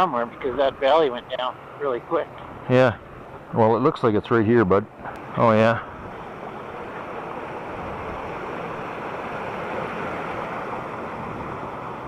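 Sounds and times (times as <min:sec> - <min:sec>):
waterfall rushing: 0:05.2 - 0:12.0.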